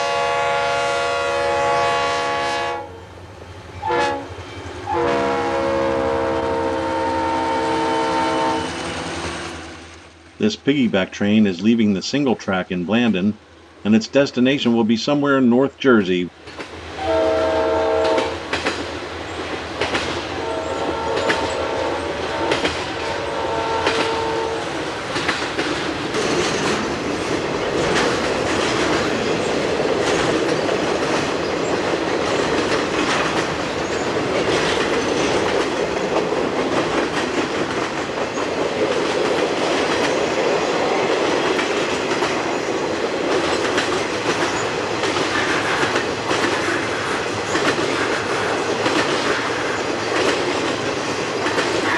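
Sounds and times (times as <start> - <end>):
locomotive air horn blasts: 0.0 - 3.0, 3.8 - 8.8, 17.0 - 18.4, 20.4 - 24.8
freight train rumbling past: 0.0 - 15.3, 15.9 - 51.9
wheels clicking over rail joints: 16.4 - 17.0, 18.0 - 51.9.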